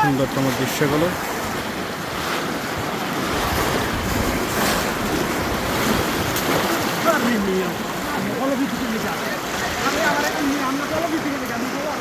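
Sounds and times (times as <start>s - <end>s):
wind on microphone: 1.1s - 7.1s.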